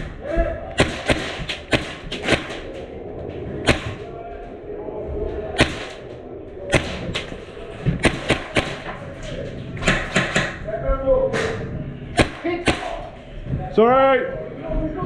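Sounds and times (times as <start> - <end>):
airsoft gun shots: 0.8 - 2.6, 8.0 - 8.9, 12.2 - 13.1.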